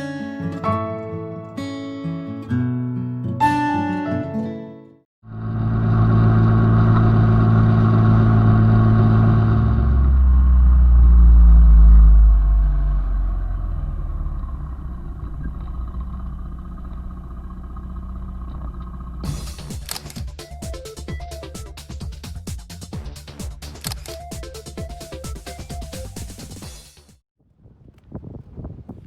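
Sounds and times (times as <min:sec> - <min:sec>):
vehicle engine running: 0:05.2 - 0:26.6.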